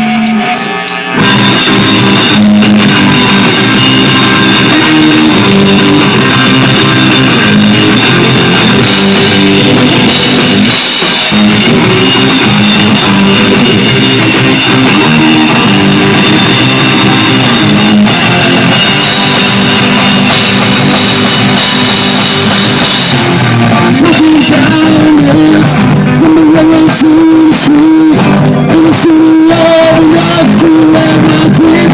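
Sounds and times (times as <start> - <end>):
held bending guitar note: 0.0 - 25.2
distorted guitars: 0.0 - 31.9
drum kit pounding: 0.0 - 31.9.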